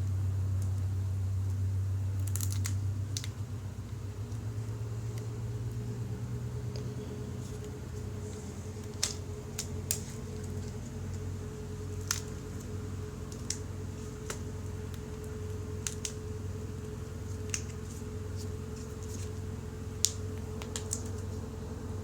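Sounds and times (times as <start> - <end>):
steady hum: 0.0 - 22.0
small parts clicking and tapping: 2.2 - 3.4.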